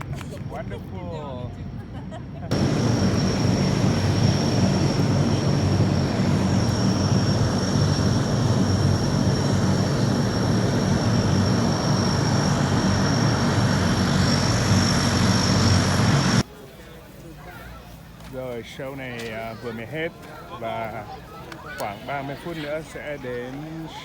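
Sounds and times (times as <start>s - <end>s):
aircraft engines rumbling: 0.0s - 24.0s
high engine whine: 2.5s - 16.5s.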